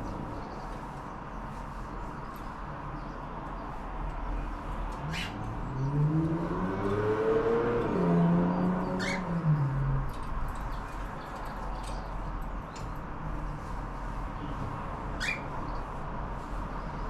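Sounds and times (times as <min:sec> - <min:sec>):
cockatiels chirping: 0:05.1 - 0:05.4, 0:09.0 - 0:09.3, 0:15.2 - 0:15.5.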